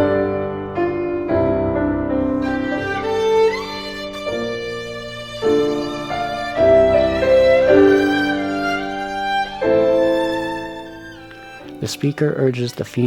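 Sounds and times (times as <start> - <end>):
bowed violin playing slow notes: 2.3 - 12.7.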